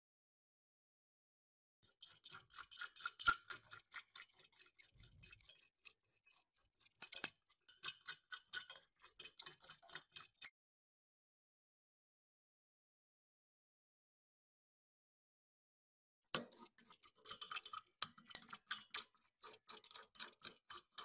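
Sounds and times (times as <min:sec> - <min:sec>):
metal clicks and scrapes: 0:01.8 - 0:10.5, 0:16.4 - 0:21.0.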